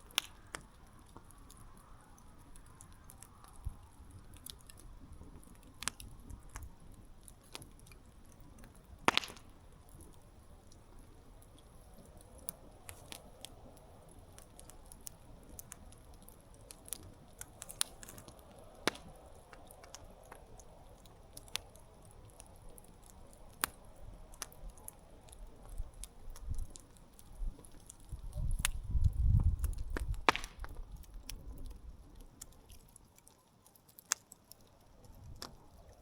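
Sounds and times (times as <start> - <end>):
campfire crackling: 0.0 - 36.0.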